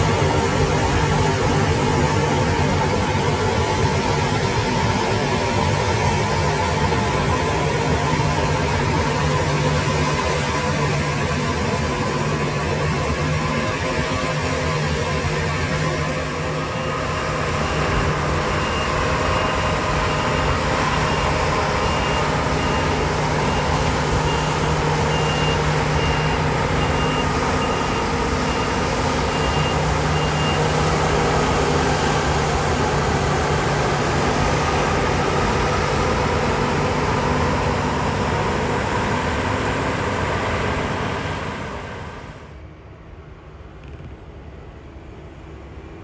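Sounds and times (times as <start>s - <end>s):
diesel engine running: 0.0s - 42.8s
reversing alarm beeps: 16.6s - 31.6s.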